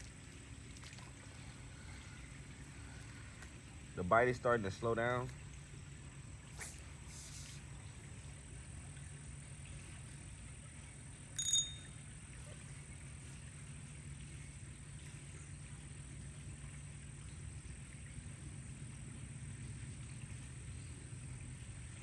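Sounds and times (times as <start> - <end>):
low background hum: 0.0 - 22.0
short high-pitched ring: 11.4 - 12.2.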